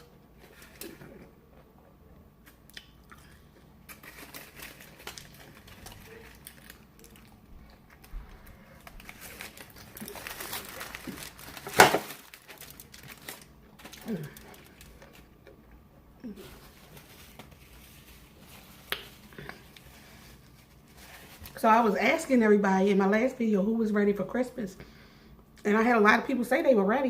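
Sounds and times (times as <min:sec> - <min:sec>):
chewing and crunching: 0:00.0 - 0:21.5
paper wrapper crinkling: 0:03.8 - 0:15.6, 0:16.3 - 0:22.0.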